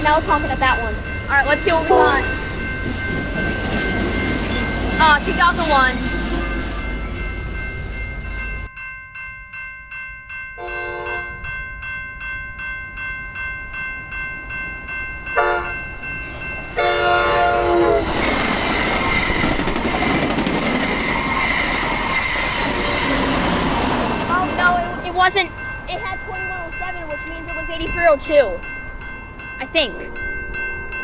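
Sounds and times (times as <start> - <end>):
train wheels rolling on rails: 0.0 - 8.7, 14.0 - 28.7
railroad crossing bell ringing: 0.0 - 31.0
train horn blasts: 1.9 - 2.4, 10.6 - 11.4, 15.4 - 15.9, 16.8 - 18.2.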